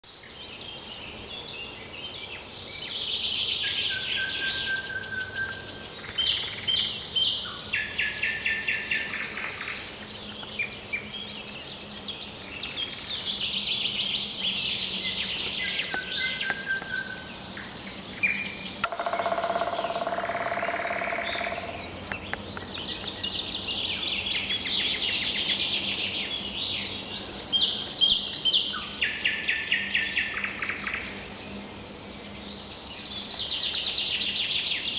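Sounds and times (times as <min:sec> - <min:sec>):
low buzzy bird call: 0:11.8 - 0:31.2.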